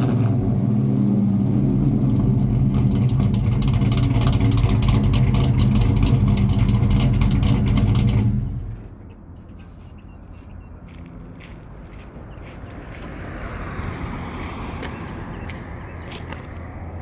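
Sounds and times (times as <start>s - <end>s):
engine running through exhaust: 0.0s - 9.1s.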